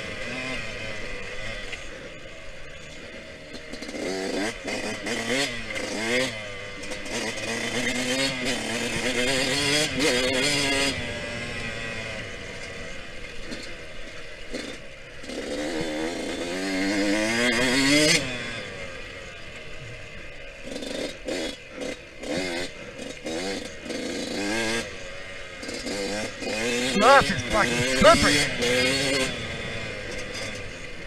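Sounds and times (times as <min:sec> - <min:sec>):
dirt bike engine revving: 0:25.6 - 0:31.0.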